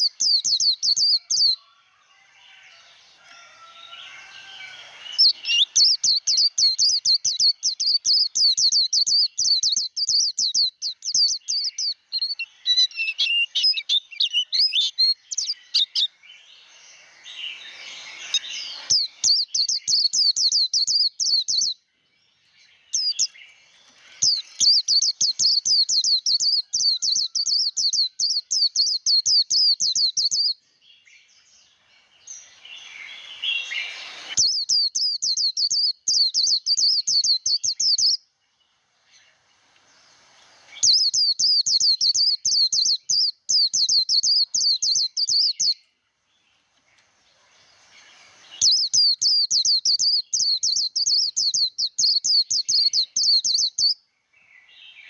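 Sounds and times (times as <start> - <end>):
bird high chattering song: 0.0 - 55.0.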